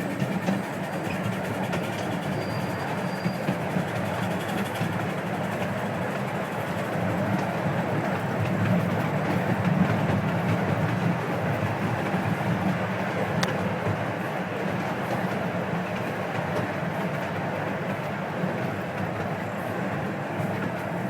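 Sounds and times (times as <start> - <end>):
train rolling rumble: 0.0 - 21.0.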